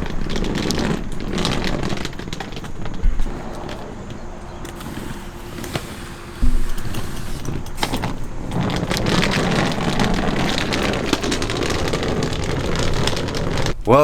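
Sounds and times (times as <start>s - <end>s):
small clicks and rattles: 0.0s - 13.8s
sudden thump: 6.4s - 7.2s.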